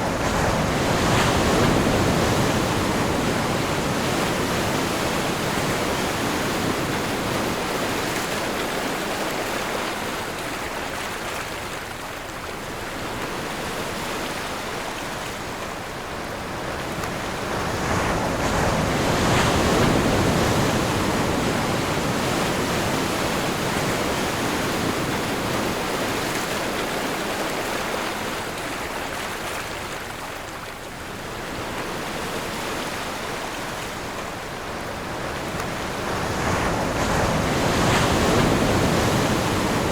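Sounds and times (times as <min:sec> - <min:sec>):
ocean waves rolling onto shore: 0:00.0 - 0:39.9.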